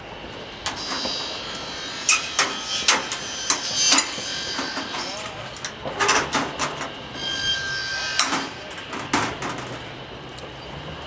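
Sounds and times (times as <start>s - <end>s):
hammer blows on sheet metal: 0.6s - 7.0s.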